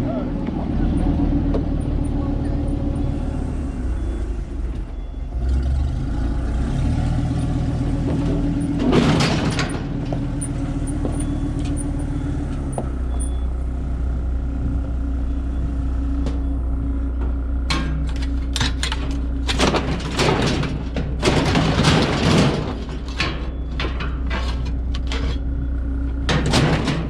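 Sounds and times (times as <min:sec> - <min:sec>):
vehicle engine idling: 0:09.6 - 0:27.0.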